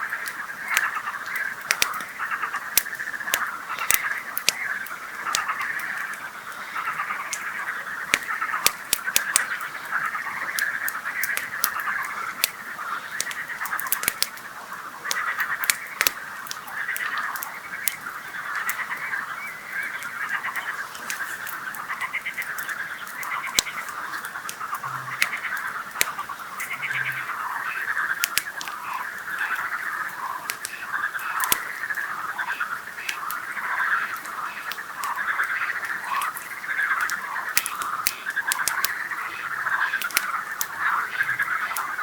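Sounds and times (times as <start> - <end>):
campfire crackling: 0.0 - 42.0
frogs croaking: 0.0 - 42.0.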